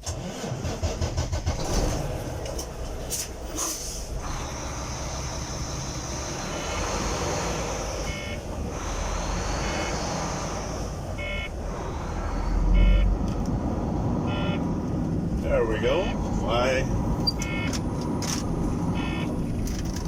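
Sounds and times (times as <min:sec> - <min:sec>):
truck engine pulling away: 0:00.0 - 0:20.0
electronic warning beeps: 0:08.0 - 0:08.5, 0:09.5 - 0:10.0, 0:11.2 - 0:11.5, 0:12.7 - 0:13.2, 0:14.3 - 0:14.6, 0:17.2 - 0:17.8, 0:18.9 - 0:19.4.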